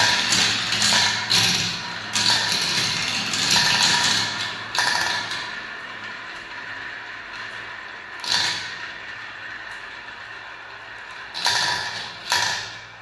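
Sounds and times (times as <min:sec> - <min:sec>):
marbles rolling down track: 0:00.0 - 0:05.7, 0:10.9 - 0:12.8
marbles clacking on track: 0:11.4 - 0:12.7.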